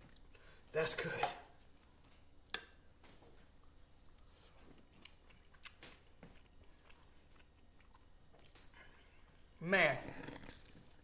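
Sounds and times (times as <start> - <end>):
soft crunching: 3.1 - 9.6
person chewing food: 3.6 - 11.0.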